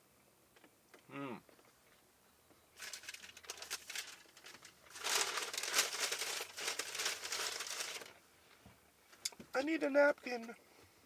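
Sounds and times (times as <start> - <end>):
short falling vocal sound: 1.1 - 1.4
wrapper crinkling and rustling: 2.8 - 8.2.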